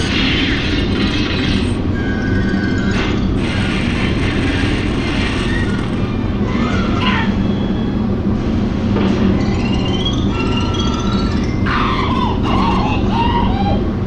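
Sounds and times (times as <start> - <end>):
low rumble of storm wind: 0.3 - 9.4
cartoon music tones: 9.3 - 13.9.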